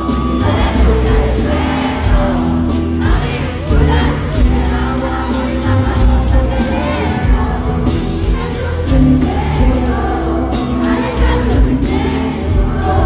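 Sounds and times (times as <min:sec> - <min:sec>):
crowd singing and cheering: 0:00.0 - 0:13.0
loud live concert music: 0:00.0 - 0:13.0
person singing: 0:00.0 - 0:13.0.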